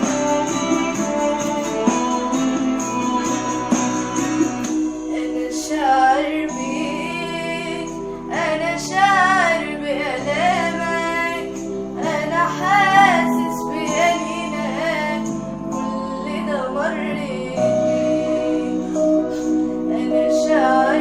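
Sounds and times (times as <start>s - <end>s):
sustained instrumental accompaniment: 0.0s - 9.6s
woman singing a hymn: 5.1s - 21.0s.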